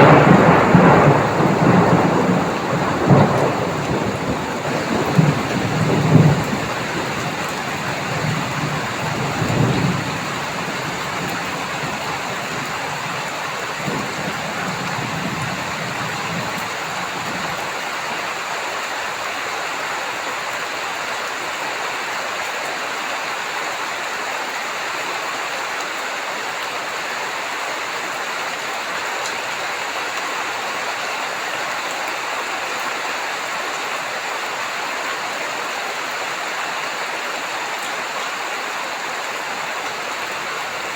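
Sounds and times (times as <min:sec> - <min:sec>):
low rumble of thunder: 0:00.0 - 0:17.8
heavy rain falling: 0:00.0 - 0:40.9.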